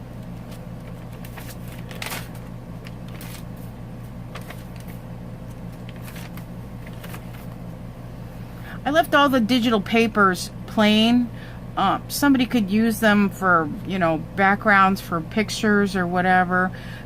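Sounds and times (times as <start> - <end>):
steady low hum: 0.0 - 17.0
paper rustling: 0.2 - 7.6.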